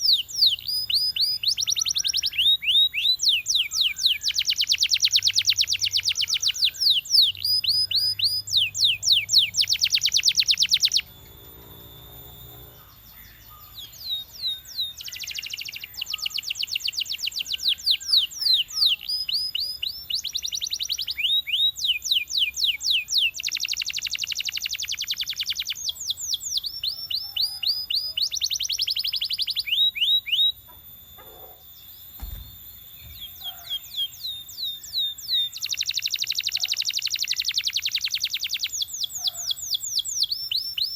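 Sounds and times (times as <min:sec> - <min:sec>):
canary singing fast trills: 0:00.0 - 0:40.9
short low thump: 0:32.2 - 0:33.4.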